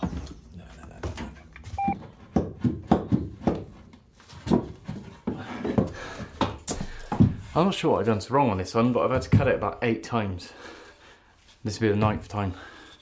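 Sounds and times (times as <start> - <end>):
high beep: 1.8 - 2.0
knocks and thuds: 2.0 - 7.6.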